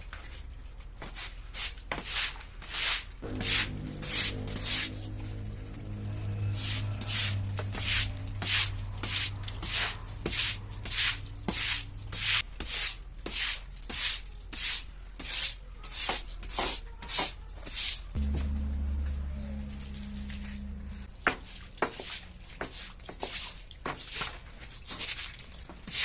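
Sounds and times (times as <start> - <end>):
hand scrubbing a surface: 2.0 - 5.4, 6.2 - 16.2.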